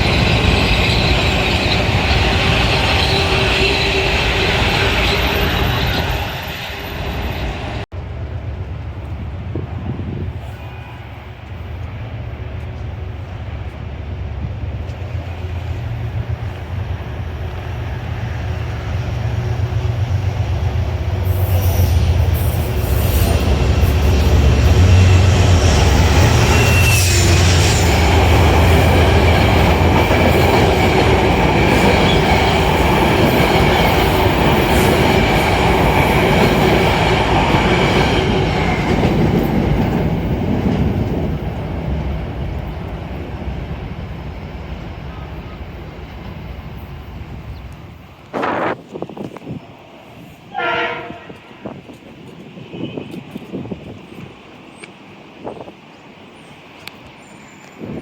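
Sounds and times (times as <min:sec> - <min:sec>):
high wheel squeal: 0:00.0 - 0:07.8, 0:21.3 - 0:29.4
train passing with rail noise: 0:00.0 - 0:58.0
wind rumbling on microphone: 0:07.6 - 0:17.4, 0:27.3 - 0:54.6, 0:57.8 - 0:58.0.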